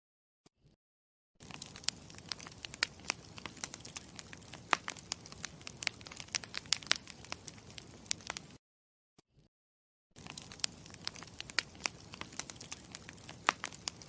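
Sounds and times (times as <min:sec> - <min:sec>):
campfire crackling: 0:01.4 - 0:08.6, 0:10.2 - 0:14.0.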